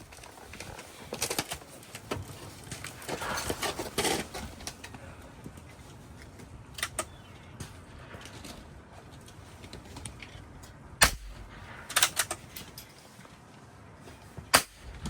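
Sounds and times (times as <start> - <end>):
rifle shots: 14.5 - 15.0.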